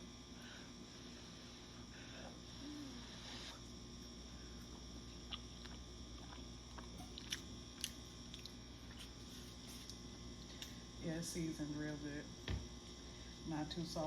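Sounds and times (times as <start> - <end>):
steady low hum: 0.0 - 14.0
faint wet chewing: 4.7 - 10.8.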